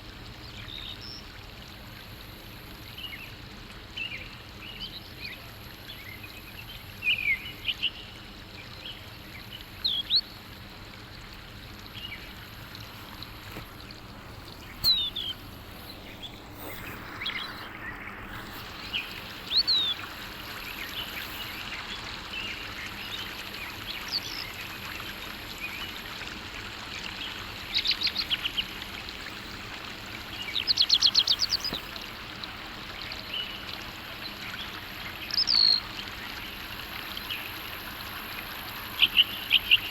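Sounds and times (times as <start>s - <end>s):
steady hiss: 11.5s - 25.6s, 27.7s - 32.8s
songbirds chirping and trilling: 13.5s - 24.4s.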